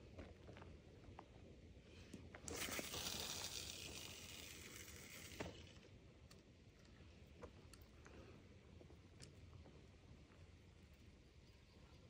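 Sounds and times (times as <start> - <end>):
fishing line hissing off spool: 2.4 - 5.9.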